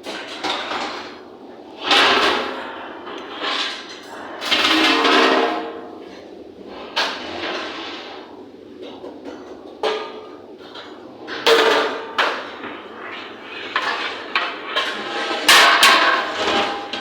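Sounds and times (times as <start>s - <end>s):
utensils and cookware clanking: 8.8s - 17.0s.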